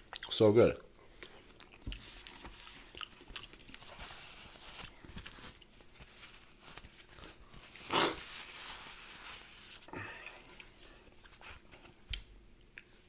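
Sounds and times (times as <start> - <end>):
person chewing food: 0.0 - 6.0, 10.0 - 11.3.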